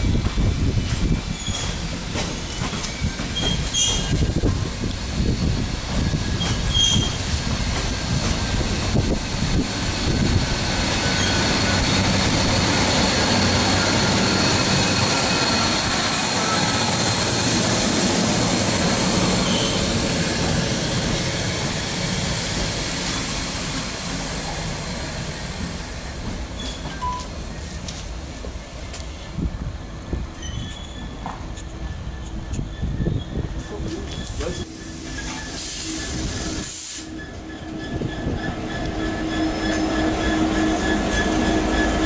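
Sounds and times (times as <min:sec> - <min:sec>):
diesel train passing: 0:00.0 - 0:42.0
freight train rumbling past: 0:00.0 - 0:42.0
high wheel squeal: 0:00.7 - 0:04.4, 0:06.0 - 0:07.3, 0:10.0 - 0:21.8, 0:25.2 - 0:27.8, 0:30.3 - 0:42.0.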